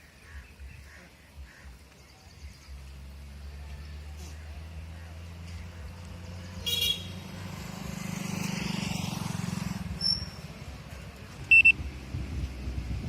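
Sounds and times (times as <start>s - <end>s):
vehicle engine drone: 2.4s - 13.0s
high-pitched horn beeps: 11.5s - 11.8s.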